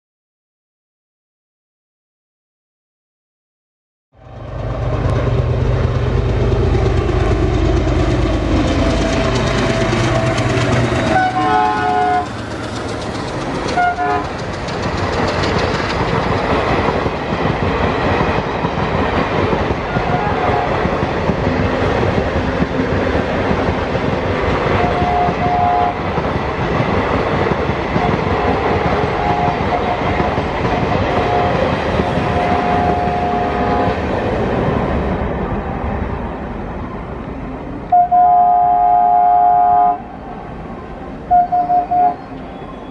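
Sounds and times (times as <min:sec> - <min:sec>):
diesel engine hum: 0:04.2 - 0:17.3
clickety-clack of wheels: 0:04.6 - 0:35.0
train horn: 0:08.9 - 0:12.4, 0:13.7 - 0:14.4, 0:19.8 - 0:20.9, 0:24.8 - 0:26.0, 0:28.0 - 0:30.2, 0:31.1 - 0:33.9, 0:37.9 - 0:40.4, 0:41.3 - 0:42.9
coaches rumbling and clattering: 0:12.2 - 0:20.2.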